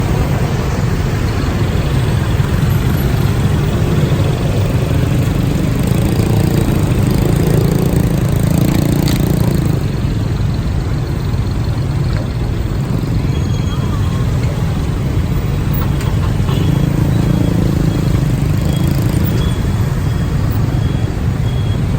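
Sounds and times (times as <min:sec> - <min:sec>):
wind rush and road noise: 0:00.0 - 0:16.7
motorcycle engine running: 0:01.7 - 0:13.5, 0:14.2 - 0:21.9.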